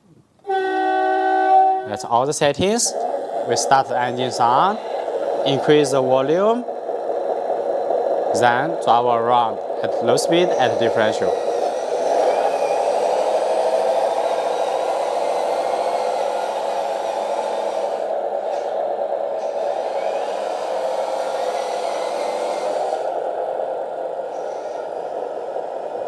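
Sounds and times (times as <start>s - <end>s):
simulated truck engine sound: 1.8s - 26.0s.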